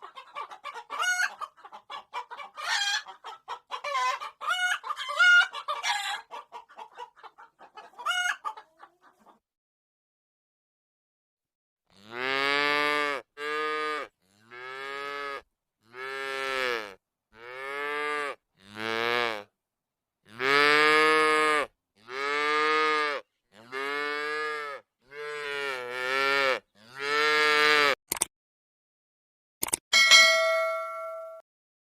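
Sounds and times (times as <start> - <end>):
cattle mooing: 20.3 - 28.0
brief click: 29.6 - 29.8.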